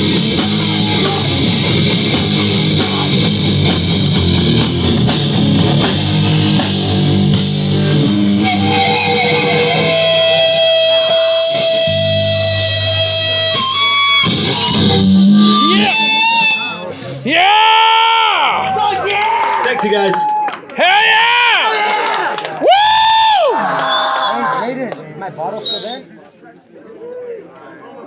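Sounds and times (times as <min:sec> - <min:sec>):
held high guitar note: 0:00.0 - 0:17.2
distorted electric guitar: 0:00.0 - 0:17.4
rock drums: 0:00.0 - 0:19.1.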